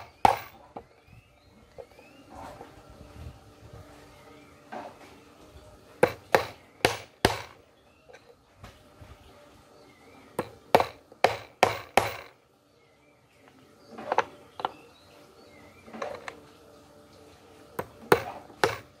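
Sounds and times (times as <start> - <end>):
hammer driving nails into wood: 0.0 - 0.9, 6.0 - 7.6, 10.4 - 12.4, 17.8 - 19.0.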